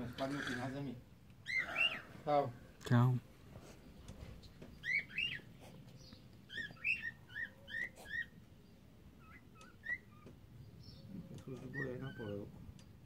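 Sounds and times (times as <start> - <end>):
cockatiel chirping: 4.8 - 5.5, 6.5 - 8.4, 9.2 - 10.3.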